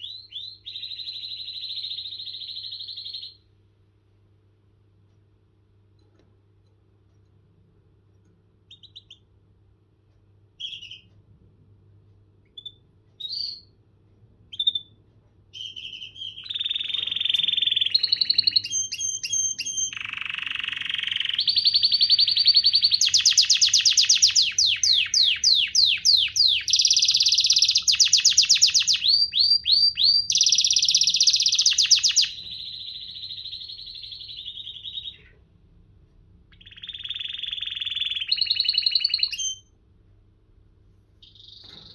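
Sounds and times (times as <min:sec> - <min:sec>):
canary singing trills: 0:00.0 - 0:03.5, 0:08.6 - 0:09.4, 0:10.6 - 0:11.1, 0:12.5 - 0:13.8, 0:14.5 - 0:35.4, 0:36.5 - 0:39.8, 0:41.2 - 0:41.9.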